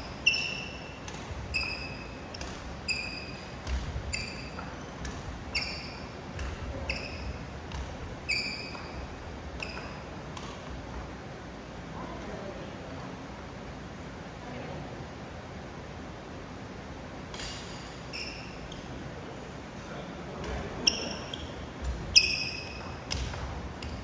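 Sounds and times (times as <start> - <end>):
rackets striking shuttlecocks: 0.1 - 11.2, 20.4 - 24.0.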